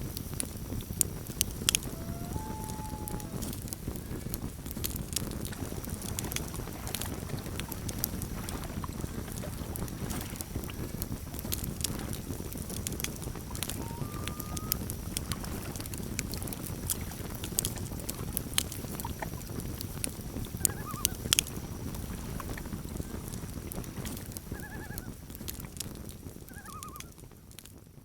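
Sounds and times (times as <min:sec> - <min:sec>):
campfire crackling: 0:00.0 - 0:28.0
loon tremolo calls: 0:01.4 - 0:04.3, 0:13.3 - 0:15.3, 0:20.6 - 0:21.3, 0:24.5 - 0:25.2, 0:26.5 - 0:27.2.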